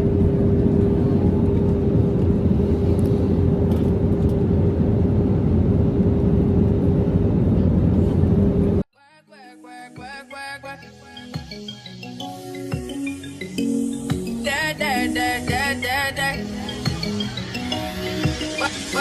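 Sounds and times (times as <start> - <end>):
constant hum: 0.0 - 8.8
airliner cabin engine rumble: 0.0 - 8.9.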